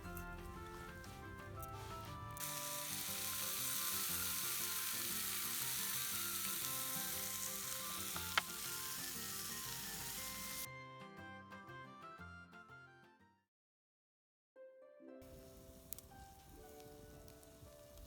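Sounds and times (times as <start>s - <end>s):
soft background music: 0.0s - 13.4s, 14.6s - 18.0s
food sizzling in a pan: 2.4s - 10.7s, 15.2s - 18.0s.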